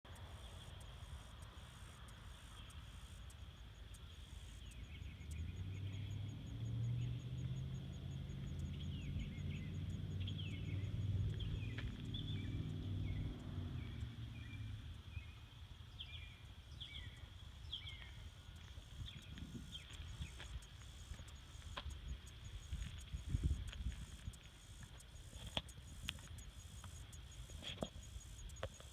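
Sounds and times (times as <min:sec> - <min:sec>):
insect chorus: 0:00.1 - 0:28.9
bird chirps: 0:03.8 - 0:28.9
vehicle engine passing: 0:05.2 - 0:15.0.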